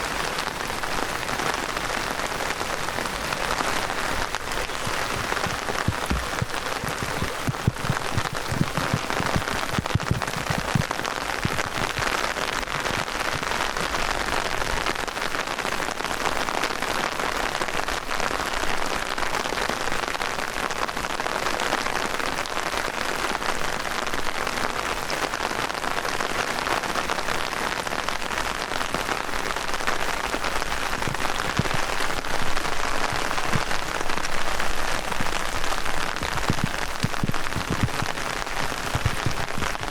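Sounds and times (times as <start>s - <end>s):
close raindrop hits: 0.0s - 14.4s, 29.7s - 39.9s
heavy rain hiss: 0.0s - 39.9s.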